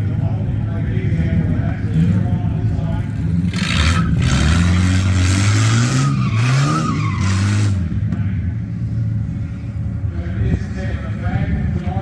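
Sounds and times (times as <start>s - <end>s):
car engine revving: 1.8s - 8.1s.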